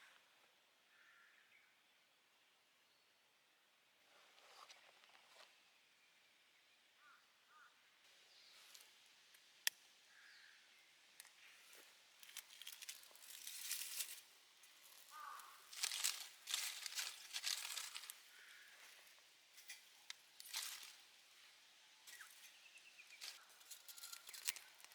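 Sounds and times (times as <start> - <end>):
rustling and crinkling: 11.7 - 24.9.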